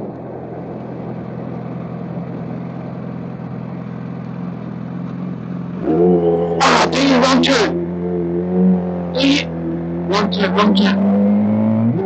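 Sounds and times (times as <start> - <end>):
road and wind noise: 0.0 - 12.0
motorcycle engine running: 1.0 - 11.9.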